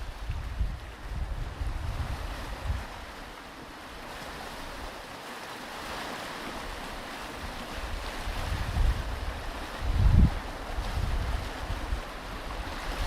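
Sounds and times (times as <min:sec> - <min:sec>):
wind buffeting microphone: 0:00.0 - 0:03.4, 0:06.6 - 0:13.0
ocean surf washing onto beach: 0:00.0 - 0:13.0.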